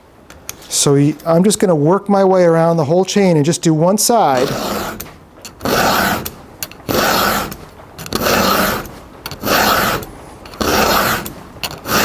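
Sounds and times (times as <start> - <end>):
file rasping on chainsaw chain: 4.4 - 12.0.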